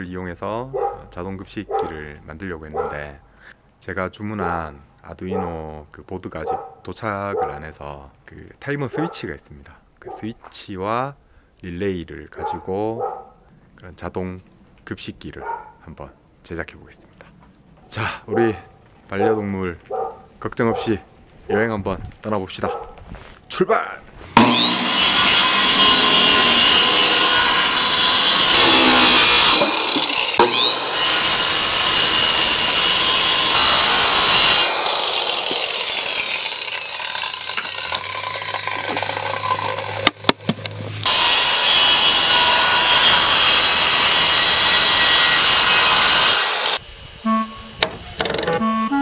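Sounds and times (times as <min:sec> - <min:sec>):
circular saw cutting plywood: 0:24.3 - 0:49.0.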